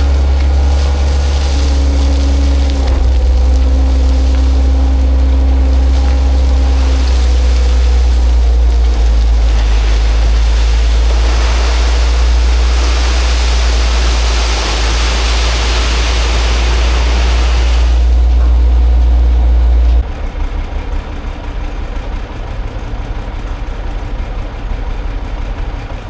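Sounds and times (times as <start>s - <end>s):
gritty rushing hiss: 0.0s - 19.3s
machine engine running: 0.0s - 26.0s.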